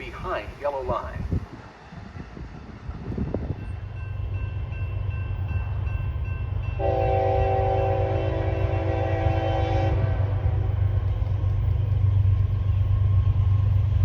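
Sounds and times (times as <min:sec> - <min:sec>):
train rumbling: 0:00.0 - 0:14.0
train horn blast: 0:06.8 - 0:10.9.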